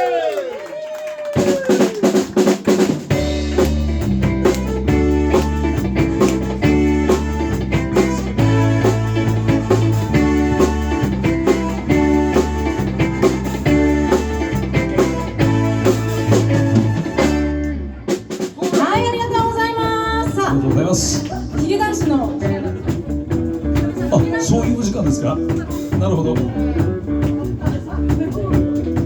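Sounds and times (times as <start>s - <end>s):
drum kit: 1.3s - 29.0s
electric guitar: 1.3s - 29.0s
bass riff: 2.8s - 29.0s.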